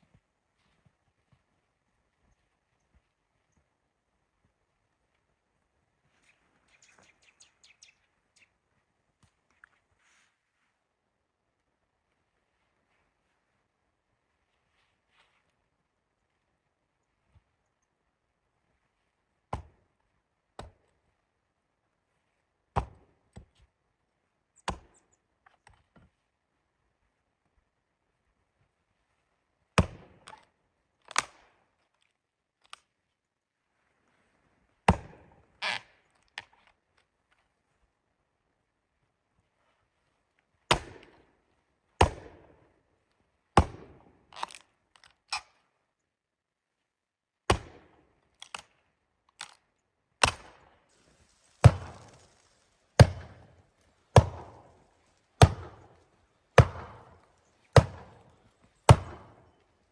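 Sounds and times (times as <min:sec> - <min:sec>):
wood being chopped: 0:19.5 - 0:19.8, 0:22.8 - 0:23.6, 0:24.6 - 0:24.9, 0:29.8 - 0:30.4, 0:34.9 - 0:35.2, 0:40.7 - 0:41.1, 0:42.0 - 0:42.3, 0:43.6 - 0:44.6, 0:47.5 - 0:48.6, 0:50.2 - 0:50.5, 0:51.4 - 0:54.8, 0:55.4 - 0:56.0, 0:56.6 - 0:59.5.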